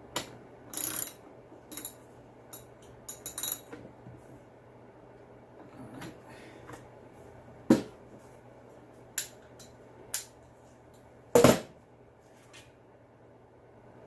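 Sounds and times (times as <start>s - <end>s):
metallic clinks and knocks of tools: 0.7s - 3.8s.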